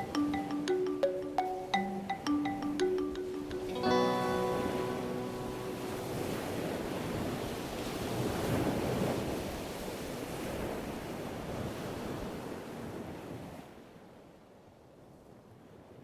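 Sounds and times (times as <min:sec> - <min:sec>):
ocean surf washing in: 0:00.0 - 0:12.7.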